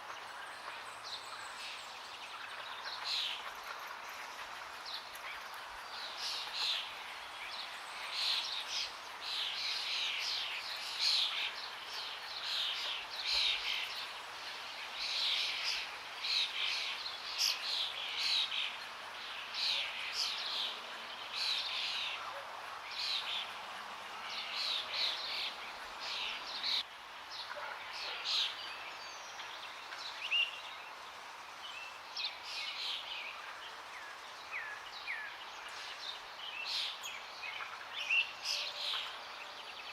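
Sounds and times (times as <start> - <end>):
birds singing: 0.0 - 39.9.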